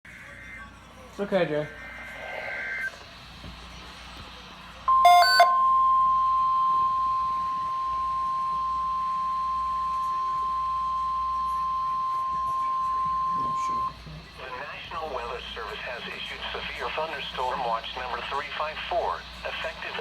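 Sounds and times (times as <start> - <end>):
short clicky beep: 4.9 - 8.4
steady warning alarm tone: 4.9 - 14.1.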